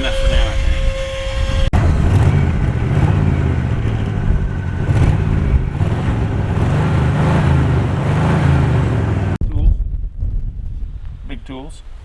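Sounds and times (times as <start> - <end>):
pickup engine rumbling: 0.9 - 9.4.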